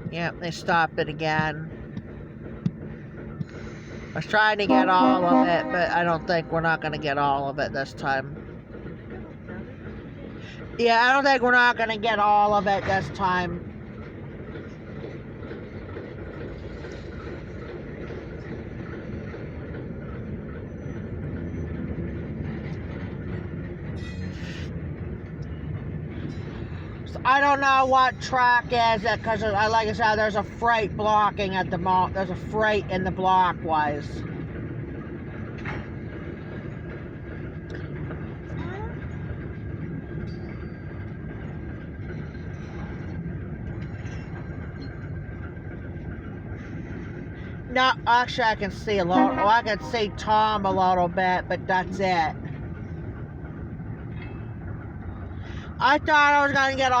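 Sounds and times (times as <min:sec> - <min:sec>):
train rumbling: 0:00.0 - 0:57.0
faint high steady tone: 0:04.7 - 0:07.0, 0:49.1 - 0:50.0.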